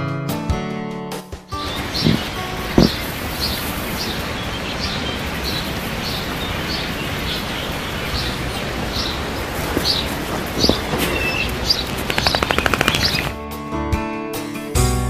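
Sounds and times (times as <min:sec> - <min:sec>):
bird chirping: 0:01.5 - 0:13.4
outdoor noise hiss: 0:01.6 - 0:13.3.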